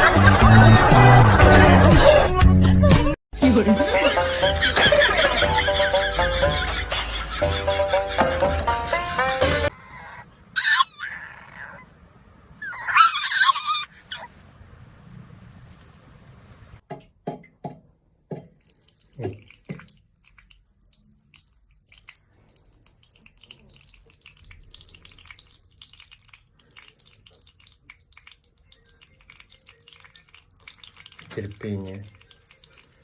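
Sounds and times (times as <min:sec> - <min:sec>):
water dripping: 0:16.9 - 0:33.0
trickling water: 0:17.4 - 0:33.0.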